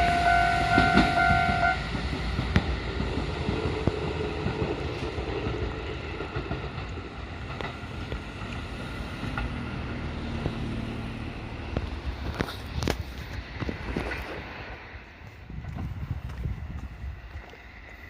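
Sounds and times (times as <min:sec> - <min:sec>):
electric train running: 0:00.0 - 0:15.0
wind rumble on microphone: 0:11.6 - 0:18.0.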